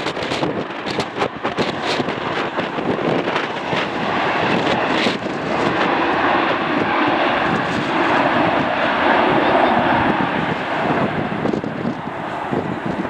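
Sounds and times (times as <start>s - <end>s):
jet engines passing overhead: 0.0s - 13.0s
wind gusting on microphone: 0.0s - 13.0s.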